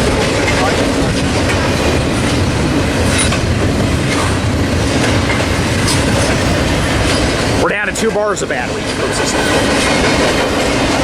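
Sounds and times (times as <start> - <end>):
train wheels on rails: 0.0 - 11.0.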